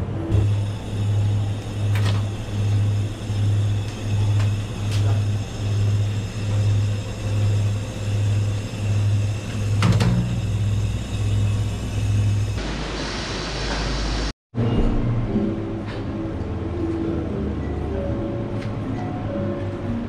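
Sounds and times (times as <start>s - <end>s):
low pulsing hum: 0.2s - 12.6s.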